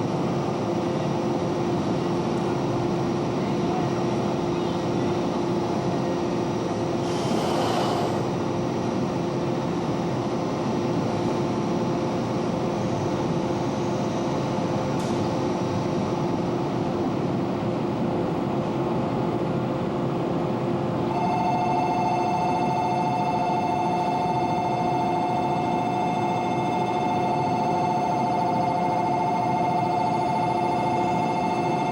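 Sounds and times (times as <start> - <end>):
electric train humming: 0.0 - 10.2
electronic chime tone: 21.1 - 31.9.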